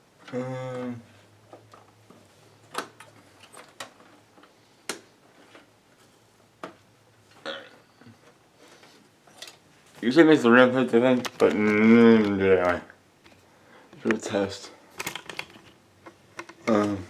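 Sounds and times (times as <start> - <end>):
person humming: 0.2 - 1.2, 16.6 - 17.0.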